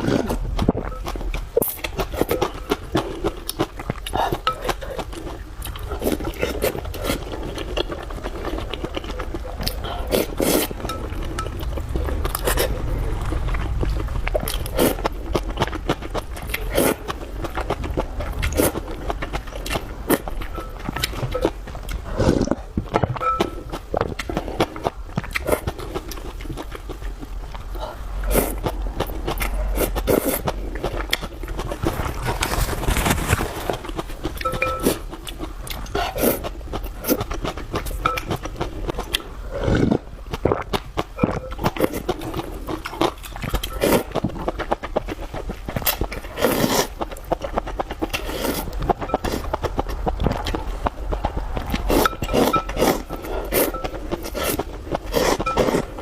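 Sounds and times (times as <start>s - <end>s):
person chewing and smacking: 0.0s - 56.0s
slurps: 48.1s - 49.5s.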